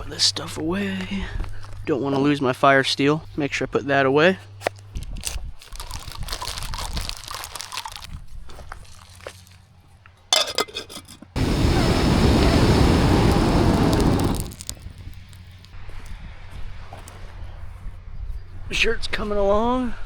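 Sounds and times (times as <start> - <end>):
camping gear rustling: 5.0 - 9.6
loud rushing noise: 11.4 - 14.7.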